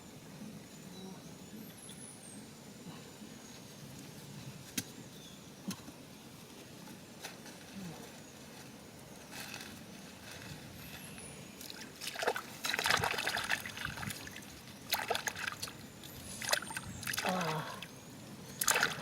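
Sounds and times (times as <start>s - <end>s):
water splashing and trickling: 11.6s - 17.9s, 18.5s - 19.0s.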